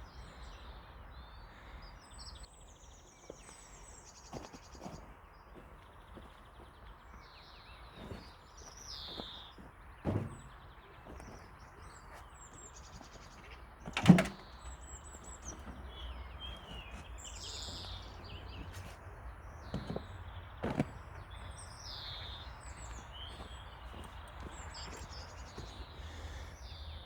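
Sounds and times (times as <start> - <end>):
small birds chirping: 0.0 - 27.0
dull thumps: 7.8 - 25.9.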